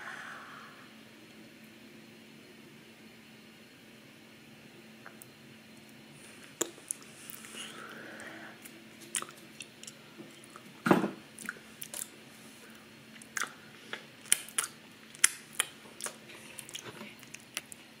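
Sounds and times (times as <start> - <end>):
mouth chewing crunchy crackers: 6.4 - 18.0.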